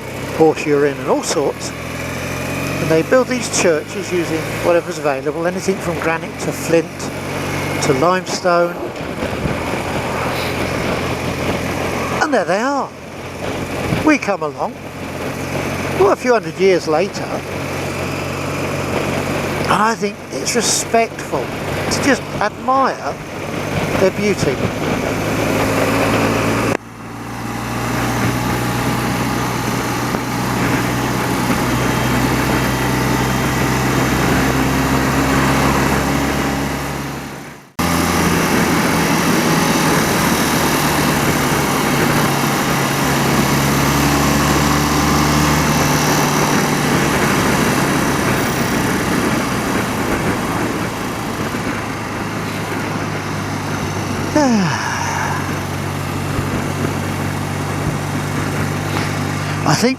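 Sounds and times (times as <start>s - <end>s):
motorcycle engine running: 0.0s - 59.9s
rushing noise: 6.8s - 14.0s.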